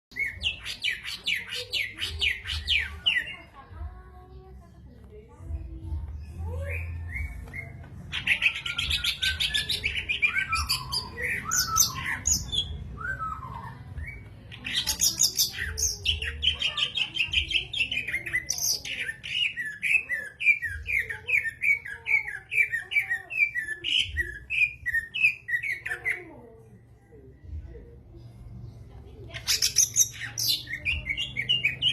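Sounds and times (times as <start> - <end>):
bird chirping and whistling: 6.8 - 16.4.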